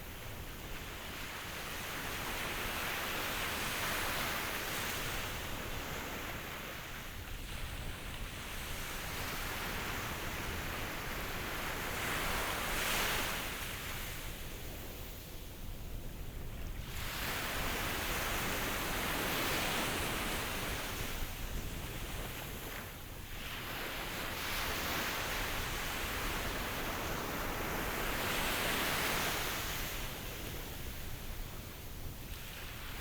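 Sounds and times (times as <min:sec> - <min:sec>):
ocean waves washing ashore: 0:16.6 - 0:33.0.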